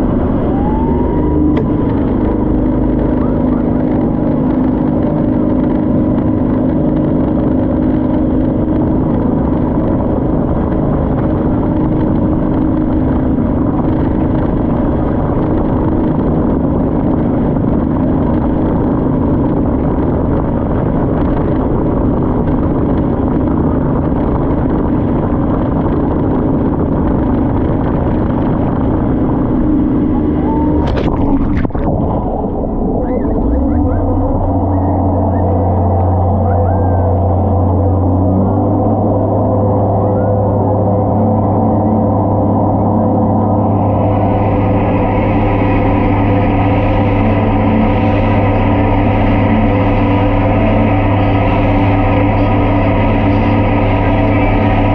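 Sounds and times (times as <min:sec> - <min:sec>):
motorboat engine running: 0:00.0 - 0:54.9
rushing water: 0:28.9 - 0:36.3.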